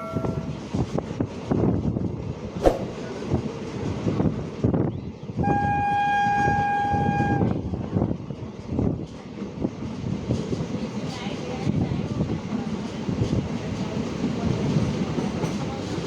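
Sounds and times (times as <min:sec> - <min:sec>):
train horn blast: 0:00.0 - 0:00.6, 0:05.4 - 0:07.6.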